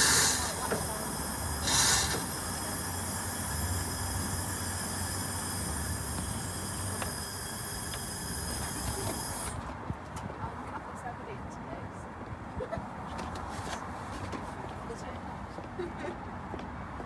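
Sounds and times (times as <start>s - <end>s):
steam wand hissing: 0.0s - 9.6s.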